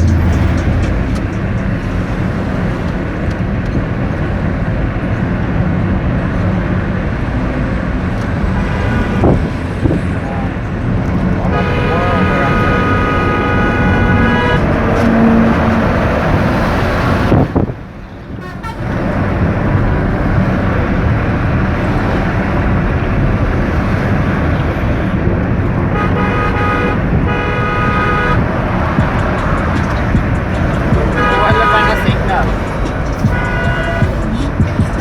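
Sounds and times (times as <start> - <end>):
car road and engine noise: 0.0 - 35.0
vehicle horn blasts: 11.4 - 17.7, 18.4 - 19.1, 25.9 - 35.0.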